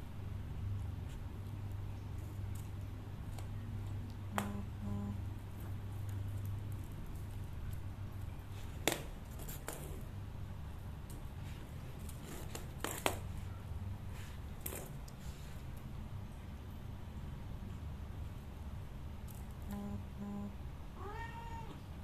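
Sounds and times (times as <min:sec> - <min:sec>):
low hum: 0:00.0 - 0:08.6, 0:13.4 - 0:20.9.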